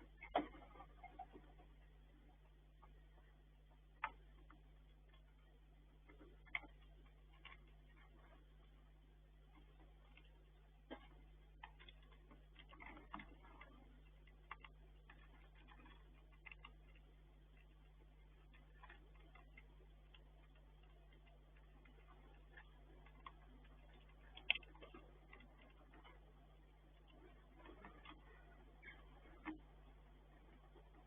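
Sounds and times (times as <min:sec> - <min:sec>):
steady low hum: 0:00.0 - 0:31.0
squirrel cracking food clicks: 0:11.6 - 0:26.3.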